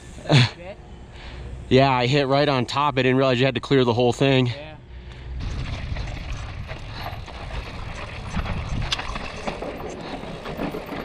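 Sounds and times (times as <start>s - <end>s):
bike rattling: 5.2s - 11.0s
wind buffeting microphone: 5.3s - 11.0s
bike tyres rolling over stones: 5.4s - 11.0s
clicks and knocks from bike: 5.4s - 11.0s.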